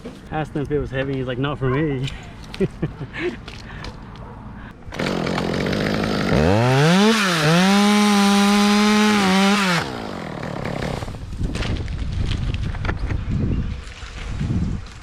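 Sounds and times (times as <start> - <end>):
chainsaw revving: 4.9 - 11.2.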